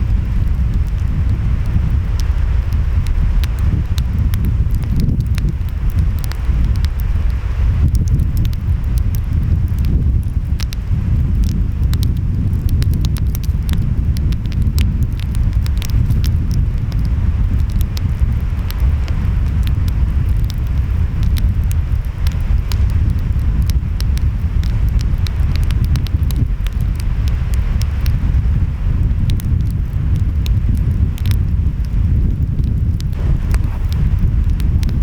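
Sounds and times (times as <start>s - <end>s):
wind: 0.0s - 35.0s
wood fire crackling and popping: 0.0s - 35.0s
ocean waves rumbling: 33.1s - 35.0s.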